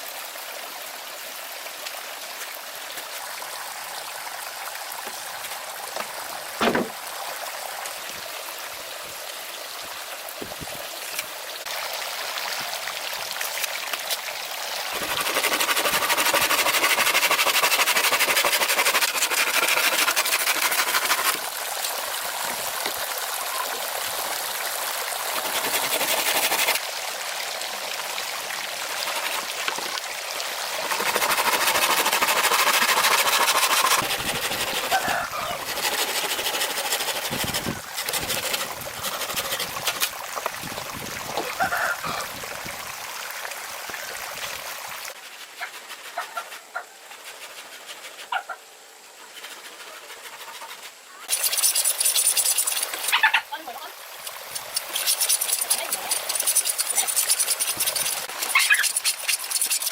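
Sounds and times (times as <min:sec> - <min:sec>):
running water rushing: 0:00.0 - 0:59.9
short thump: 0:06.6 - 0:07.0.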